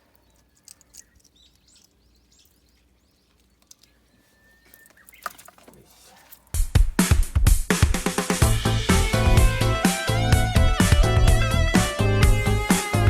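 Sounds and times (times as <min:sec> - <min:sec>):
small clicks: 0:00.0 - 0:04.0
faint bird chirps: 0:00.0 - 0:06.2
background music with a beat: 0:06.6 - 0:13.0.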